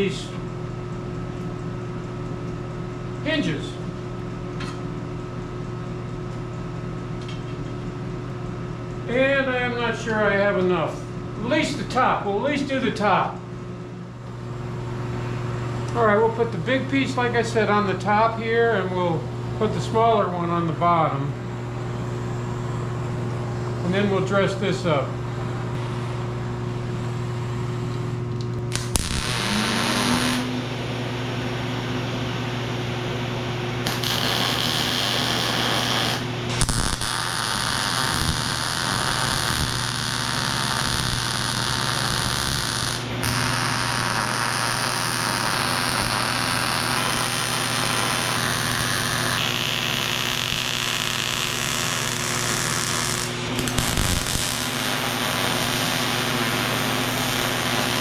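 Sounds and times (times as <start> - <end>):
welding arc crackling: 28.6 - 30.6, 33.8 - 58.0.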